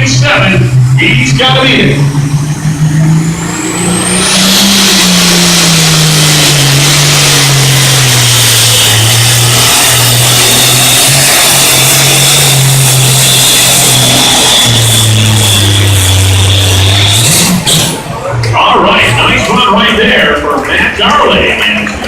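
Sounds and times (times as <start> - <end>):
high turbo whine: 0.0 - 22.0
tractor engine at full throttle: 0.0 - 22.0.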